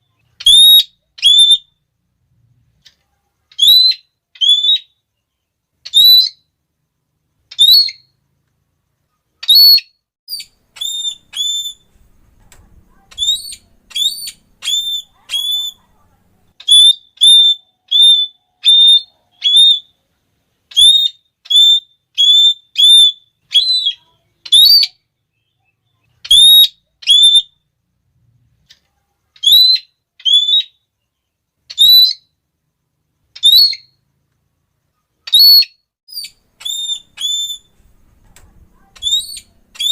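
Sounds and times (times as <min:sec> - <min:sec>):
parrot shrill calls: 0:00.4 - 0:01.7, 0:03.5 - 0:05.0, 0:05.8 - 0:06.4, 0:07.5 - 0:08.1, 0:09.4 - 0:11.9, 0:12.9 - 0:15.8, 0:16.6 - 0:20.0, 0:20.7 - 0:25.0, 0:26.2 - 0:27.6, 0:29.4 - 0:30.8, 0:31.7 - 0:32.3, 0:33.4 - 0:34.0, 0:35.2 - 0:37.8, 0:38.8 - 0:39.9.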